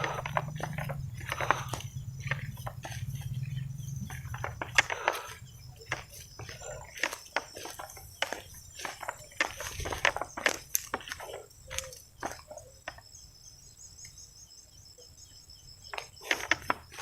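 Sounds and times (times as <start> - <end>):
footsteps crunching through dry leaves: 0.0 - 12.6
insect chirping: 0.0 - 17.0.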